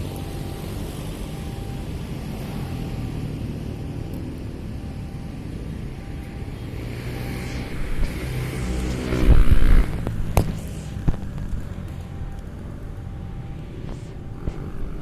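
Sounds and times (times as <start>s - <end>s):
background rumble: 4.6s - 15.0s
vehicle passing close by: 5.8s - 15.0s.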